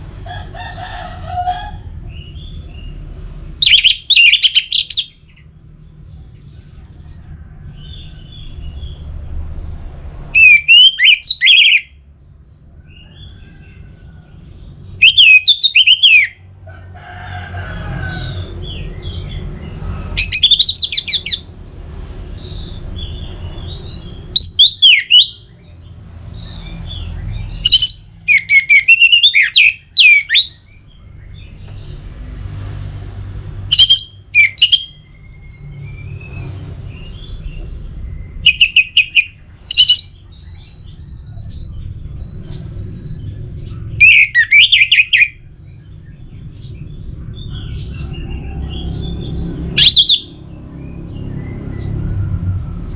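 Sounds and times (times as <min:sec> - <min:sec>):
low background rumble: 0:29.5 - 0:52.9.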